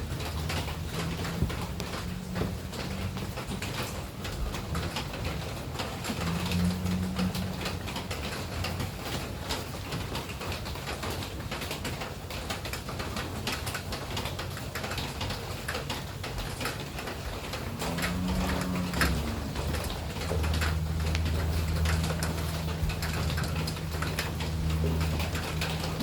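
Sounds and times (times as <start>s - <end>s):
low steady hum: 0.0s - 9.6s, 17.2s - 26.0s
rain dripping: 0.0s - 26.0s
dove cooing: 17.4s - 26.0s.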